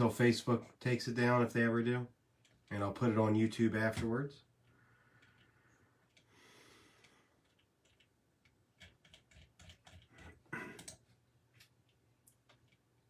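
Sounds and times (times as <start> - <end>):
faint small clicks and taps: 7.0 - 13.0.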